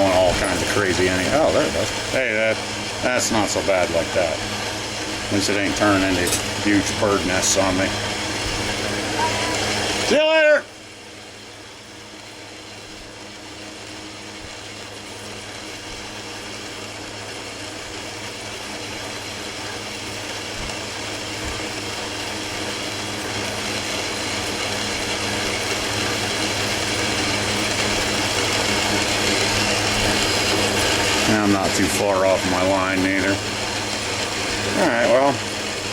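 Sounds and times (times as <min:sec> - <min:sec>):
cutting tool hissing on metal: 0:00.0 - 0:10.1, 0:19.8 - 0:35.9
metal lathe motor hum: 0:00.0 - 0:35.9.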